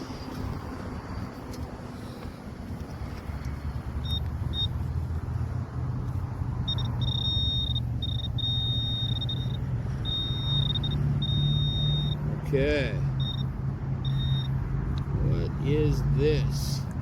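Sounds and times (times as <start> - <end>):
low engine rumble: 0.0 - 17.0
metal detector beeping: 4.0 - 4.8, 6.6 - 12.3, 13.2 - 14.6.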